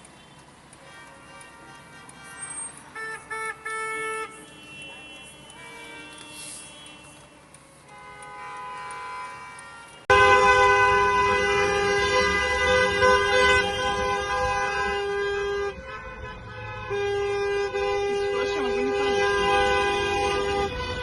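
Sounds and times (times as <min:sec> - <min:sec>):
faint car horns honking: 0:00.0 - 0:21.0
loud two-tone car horn: 0:00.8 - 0:21.0.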